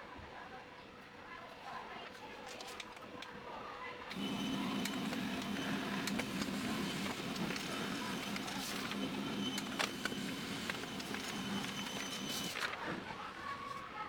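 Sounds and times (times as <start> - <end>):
printer clicks and ticks: 4.1 - 12.8
printer motor hum: 4.1 - 13.0.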